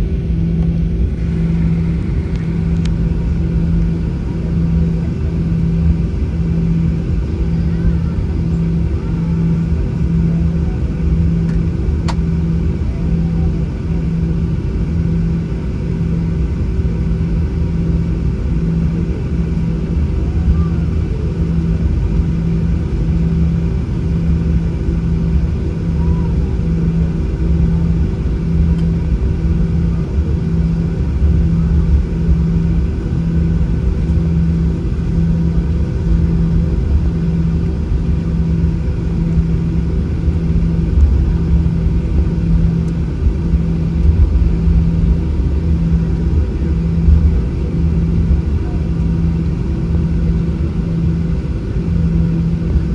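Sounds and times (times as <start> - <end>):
airliner cabin engine rumble: 0.0 - 52.9.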